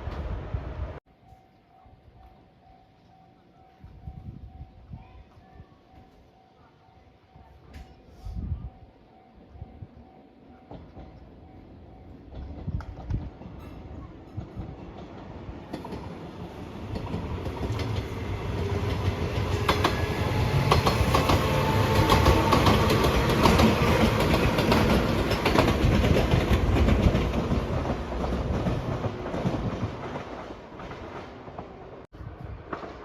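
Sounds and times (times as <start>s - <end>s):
train wheels clattering over rail joints: 12.3s - 31.8s.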